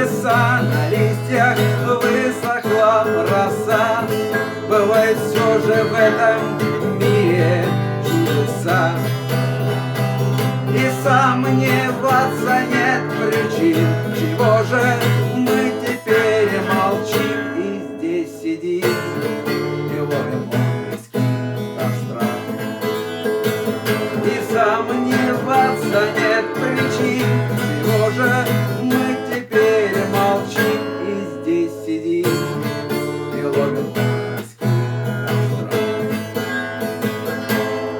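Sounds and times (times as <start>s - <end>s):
acoustic guitar music: 0.0s - 37.9s.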